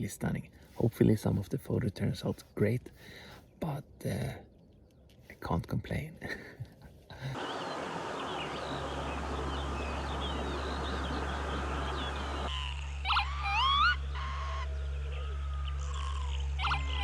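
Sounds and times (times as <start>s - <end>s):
chorus of many birds: 7.1s - 17.0s
low steady hum: 7.1s - 17.0s
lapwing calling: 7.4s - 17.0s.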